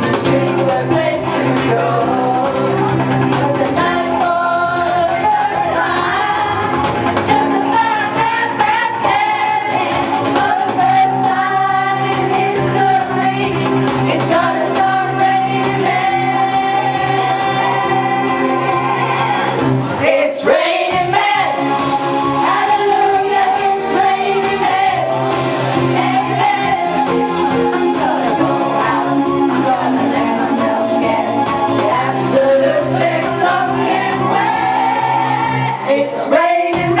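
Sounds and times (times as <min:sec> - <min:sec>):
person singing karaoke: 0:00.0 - 0:37.0
pop backing track: 0:00.0 - 0:37.0.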